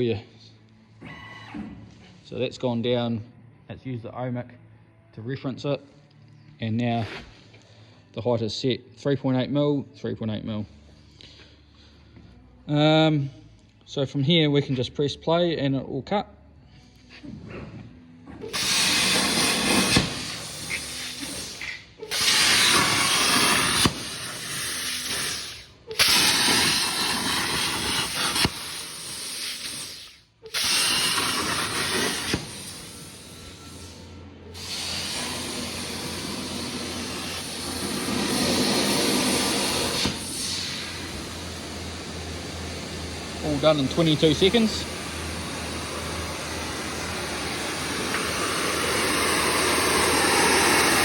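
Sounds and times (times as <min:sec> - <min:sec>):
plasma torch hissing: 0:18.4 - 0:51.0.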